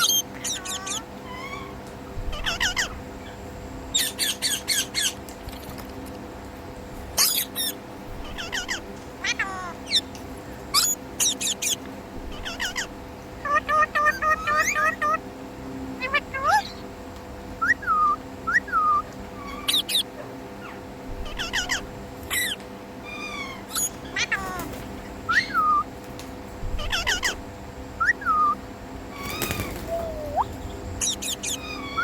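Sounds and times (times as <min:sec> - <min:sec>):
parrot screeches: 0:00.0 - 0:03.0, 0:07.2 - 0:10.0, 0:12.4 - 0:15.2, 0:18.9 - 0:24.7, 0:25.3 - 0:25.9, 0:26.8 - 0:27.4, 0:29.1 - 0:32.0
parrot whistled chirps: 0:17.6 - 0:20.1, 0:25.3 - 0:25.9, 0:28.0 - 0:28.6, 0:29.2 - 0:32.0.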